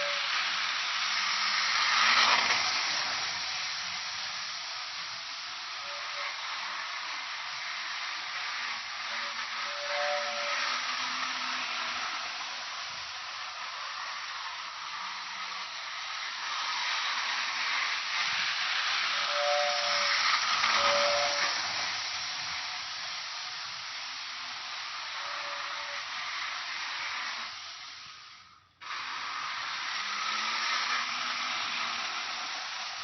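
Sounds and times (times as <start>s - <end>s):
train running with hissing rush: 0.0s - 33.0s.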